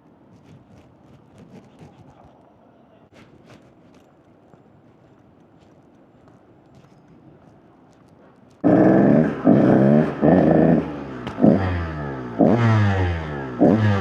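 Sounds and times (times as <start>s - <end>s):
dirt bike engine revving: 8.6s - 14.0s.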